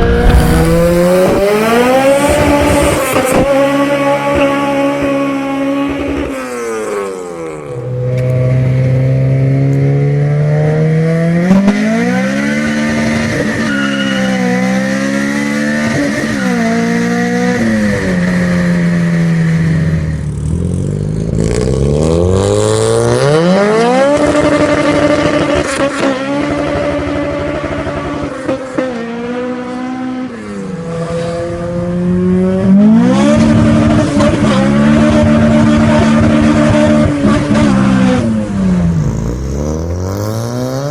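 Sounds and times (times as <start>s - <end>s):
engine revving hard: 0.0s - 7.8s.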